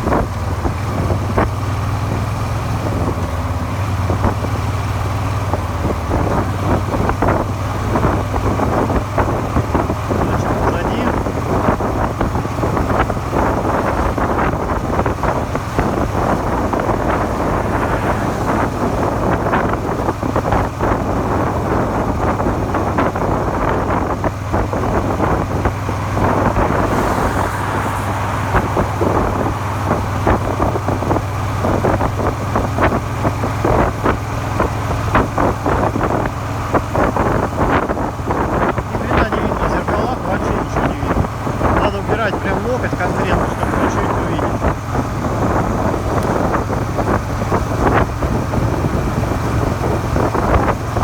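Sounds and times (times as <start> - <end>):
motorcycle engine running: 0.0 - 39.6
wind noise on microphone: 0.0 - 51.0
person speaking: 39.0 - 44.7.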